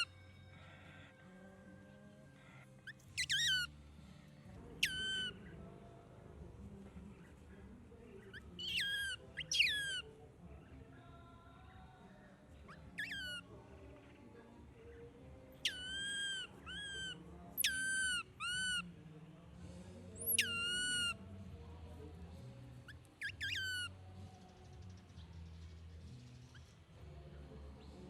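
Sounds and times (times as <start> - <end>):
baby monkey crying: 0.0 - 1.1, 2.4 - 3.7, 4.8 - 5.4, 8.3 - 10.0, 12.7 - 13.5, 15.6 - 18.8, 20.2 - 21.2, 23.2 - 23.9.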